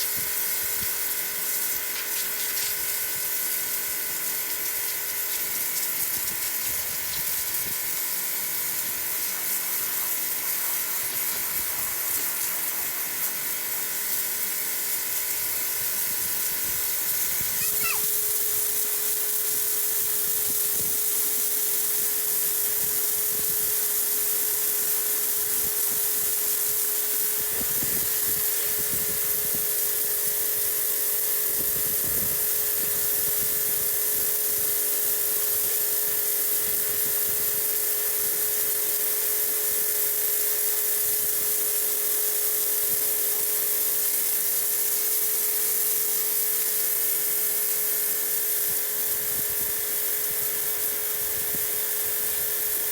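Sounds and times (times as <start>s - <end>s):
water jet spraying on wall: 0.0s - 52.9s.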